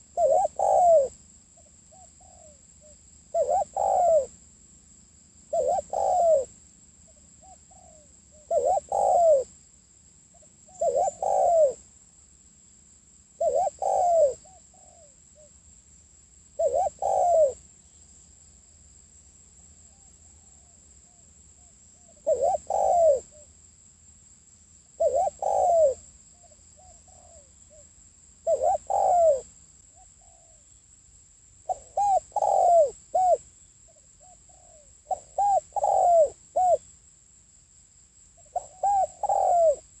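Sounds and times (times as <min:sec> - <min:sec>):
dove cooing: 0:00.0 - 0:04.4, 0:05.5 - 0:06.6, 0:07.4 - 0:09.5, 0:10.4 - 0:11.8, 0:13.4 - 0:15.5, 0:16.6 - 0:17.6, 0:20.2 - 0:23.5, 0:25.0 - 0:27.8, 0:28.4 - 0:30.6, 0:31.7 - 0:36.9, 0:38.4 - 0:40.0.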